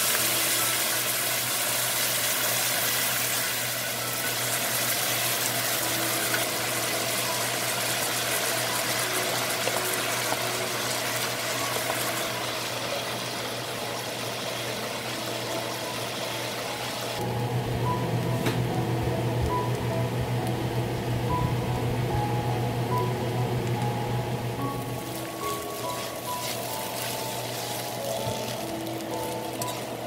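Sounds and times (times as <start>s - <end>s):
noodles sizzling in a wok: 0.0s - 17.2s, 24.7s - 30.0s
background music: 4.0s - 30.0s.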